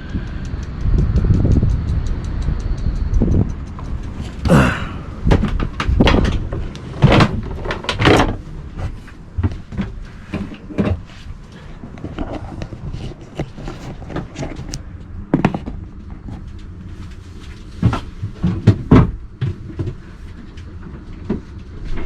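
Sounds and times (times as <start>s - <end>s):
wooden knocks and bangs: 4.5s - 11.2s, 17.8s - 20.0s.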